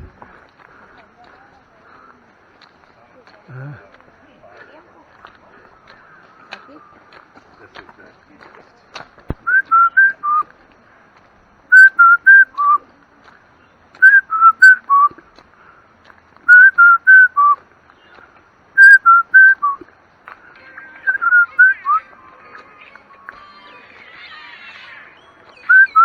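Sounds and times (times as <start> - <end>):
whistled four-note phrase: 21.0 - 22.1.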